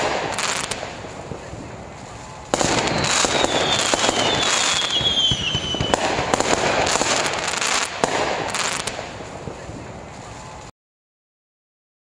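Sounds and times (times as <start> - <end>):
firework burst: 0.0 - 10.7
fireworks crackling and popping: 0.0 - 10.7
firework whistle falling: 2.6 - 6.4.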